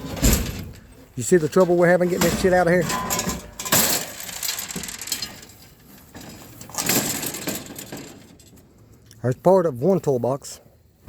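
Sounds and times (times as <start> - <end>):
metal clanking and scraping: 0.0 - 8.8.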